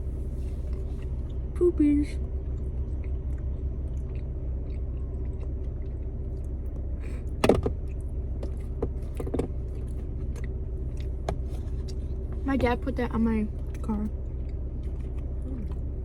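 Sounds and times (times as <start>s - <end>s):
steady low hum: 0.0s - 16.0s
person chewing and biting: 2.5s - 12.3s, 13.6s - 16.0s.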